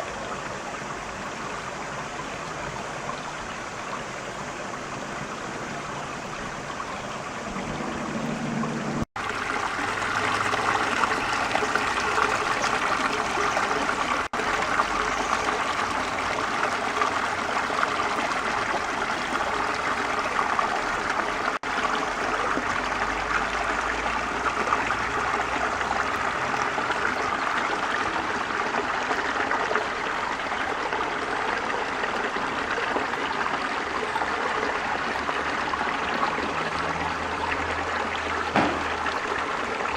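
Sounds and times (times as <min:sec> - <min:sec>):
mountain river rushing: 0:00.0 - 0:39.9.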